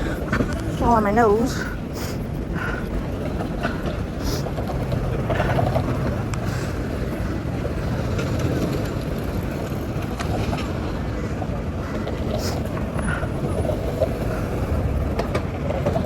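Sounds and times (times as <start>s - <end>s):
city street traffic rumble: 0.0s - 16.0s.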